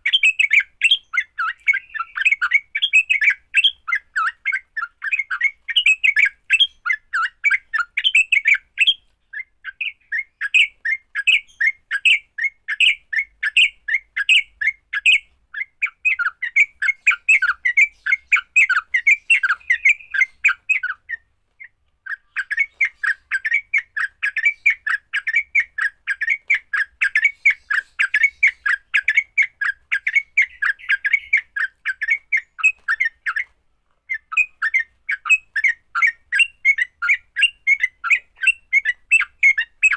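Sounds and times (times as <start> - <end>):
bird harsh chattering call: 15.8 - 21.2, 22.1 - 33.4.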